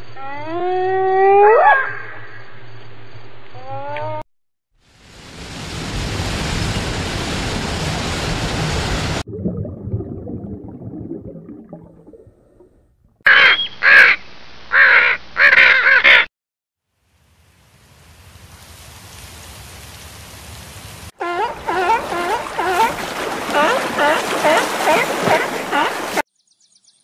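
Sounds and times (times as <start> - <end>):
harsh cawing bird calls: 13.3 - 16.3
steady noisy hiss: 16.9 - 21.1.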